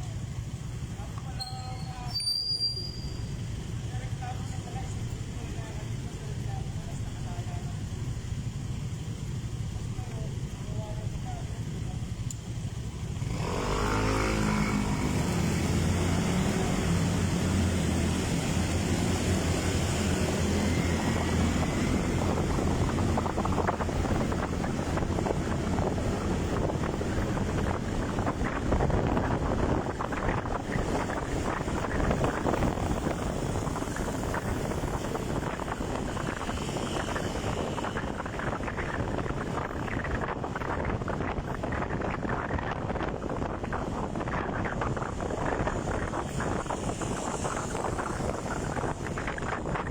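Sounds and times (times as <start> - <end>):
motorcycle engine: 0.0 - 49.9
wind buffeting microphone: 3.3 - 49.9.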